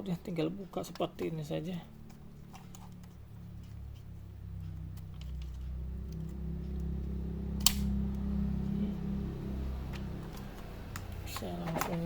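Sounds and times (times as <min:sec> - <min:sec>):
low steady hum: 0:00.0 - 0:12.0
laptop parts clicking and tapping: 0:00.8 - 0:07.0, 0:09.9 - 0:12.0.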